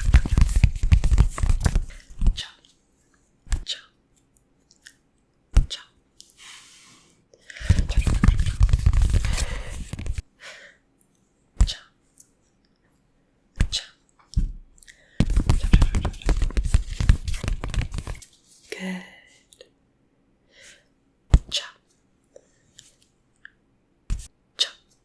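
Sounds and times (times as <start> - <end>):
crinkly rubbing and crackling: 0.0 - 2.4, 7.6 - 10.2, 15.3 - 18.7.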